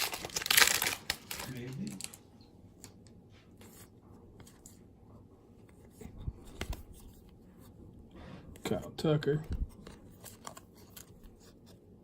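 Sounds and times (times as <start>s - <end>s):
cards clicking and rustling: 9.4s - 11.8s.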